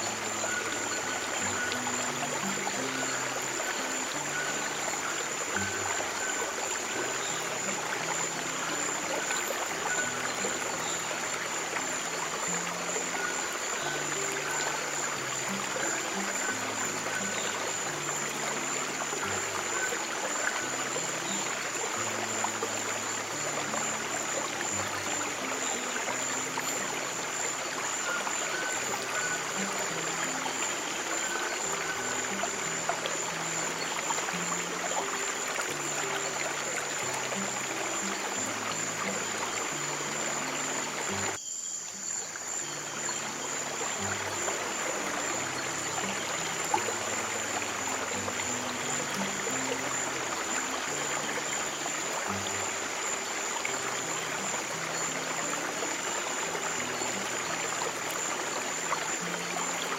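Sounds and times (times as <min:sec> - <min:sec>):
running stream water: 0:00.0 - 0:59.9
thin steady high tone: 0:00.0 - 0:59.9.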